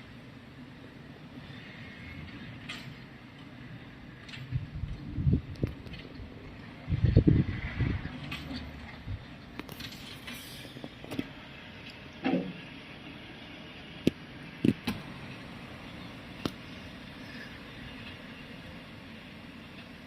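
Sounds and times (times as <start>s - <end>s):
truck engine idling: 13.9s - 20.0s.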